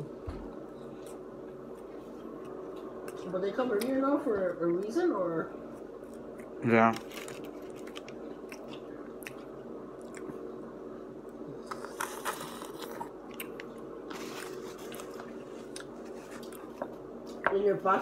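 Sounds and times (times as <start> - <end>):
steady low hum: 0.0 - 18.0
chewing food with crunches: 5.7 - 10.6, 11.3 - 17.4.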